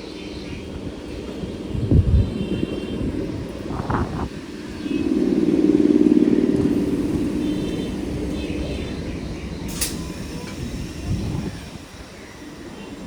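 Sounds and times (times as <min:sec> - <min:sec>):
train rumbling: 0:00.0 - 0:13.0
steady buzzing hum: 0:04.2 - 0:13.0.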